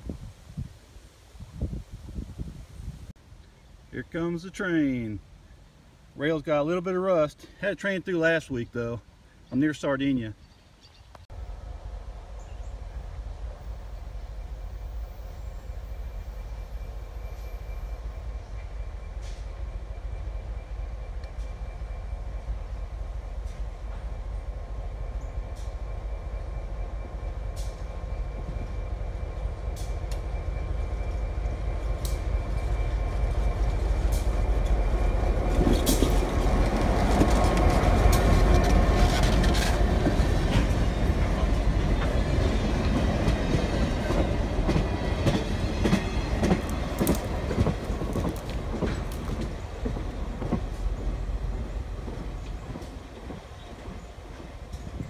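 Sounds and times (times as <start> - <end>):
diesel locomotive rumbling: 11.2 - 55.0
wheels clicking over rail joints: 33.9 - 55.0.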